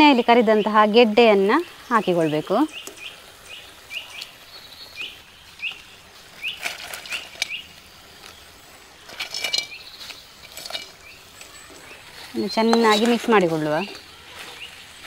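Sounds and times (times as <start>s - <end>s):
bird chirping: 0.0s - 15.0s
food pieces clattering into pan: 9.1s - 11.8s.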